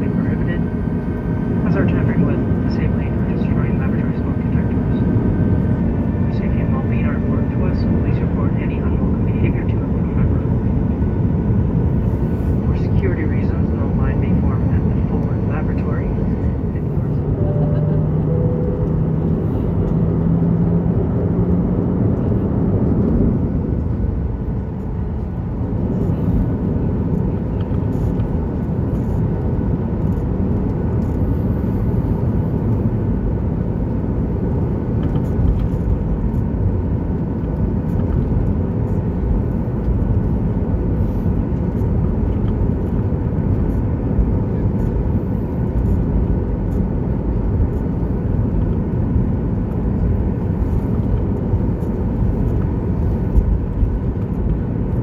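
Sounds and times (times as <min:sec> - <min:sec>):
faint steady whine: 0:00.0 - 0:21.2
jet engine cabin rumble: 0:00.0 - 0:55.0.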